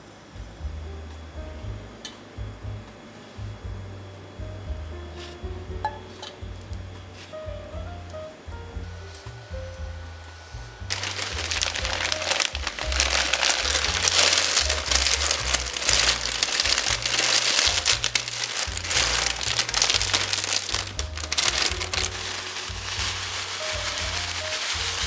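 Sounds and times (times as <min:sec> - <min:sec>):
background music with bass line: 0:00.0 - 0:09.0
dry noodles crunching: 0:10.9 - 0:25.0.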